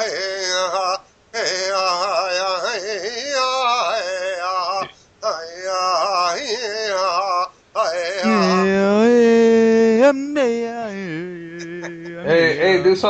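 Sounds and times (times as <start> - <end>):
man chanting wordless vocables: 0.0 - 13.0.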